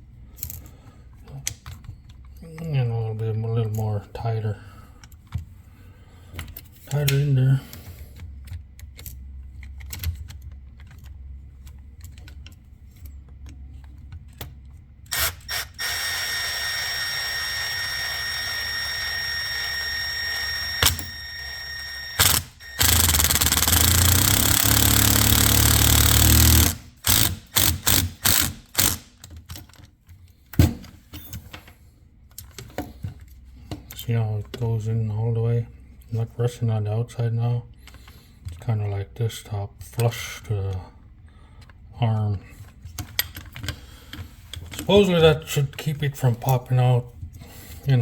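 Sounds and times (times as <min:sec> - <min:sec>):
power drill whining: 0:15.1 - 0:29.0.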